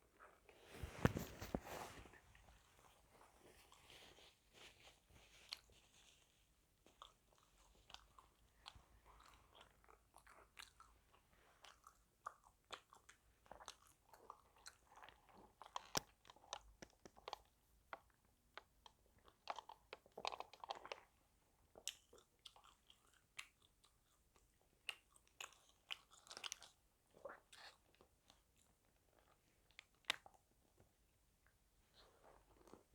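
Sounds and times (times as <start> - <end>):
chewing crunchy fried food: 6.4 - 30.8.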